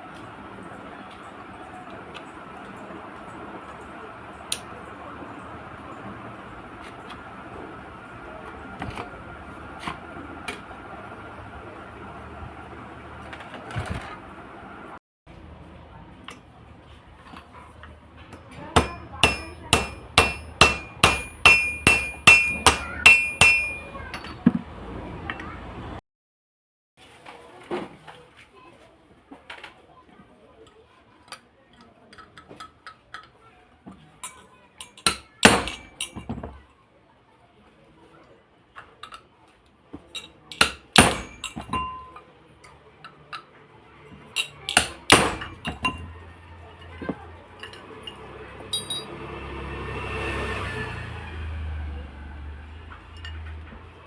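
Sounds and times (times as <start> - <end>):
metal tools clinking and knocking: 18.3 - 24.5, 34.2 - 36.5, 40.1 - 43.5, 44.2 - 46.2, 46.8 - 49.2
hammer striking metal: 18.4 - 24.4, 34.8 - 36.3, 40.6 - 42.1, 44.4 - 46.1, 48.7 - 49.2.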